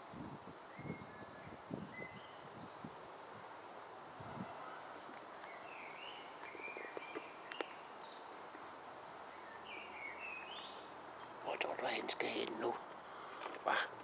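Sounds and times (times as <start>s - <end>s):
outdoor background hiss: 0.0s - 14.0s
small bird chirping: 5.4s - 12.6s.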